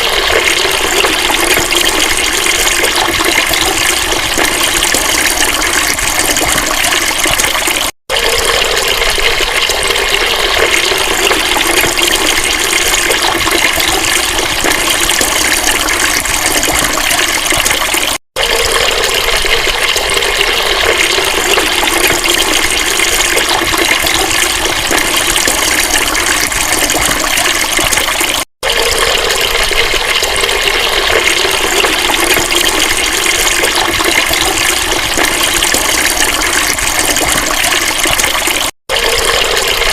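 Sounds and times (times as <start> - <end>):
flowing water gushing: 0.0 - 39.9.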